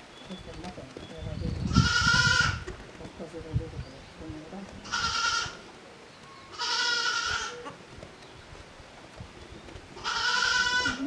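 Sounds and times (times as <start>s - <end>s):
goat bleating: 1.7s - 2.8s, 4.8s - 5.6s, 6.5s - 7.8s, 10.0s - 11.0s.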